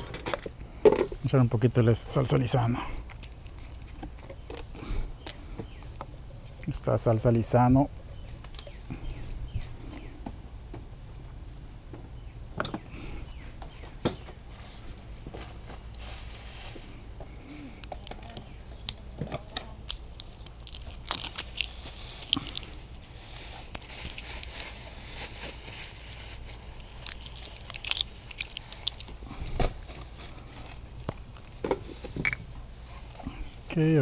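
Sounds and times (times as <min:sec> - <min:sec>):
hands handling bottles and packaging: 0:14.4 - 0:34.0.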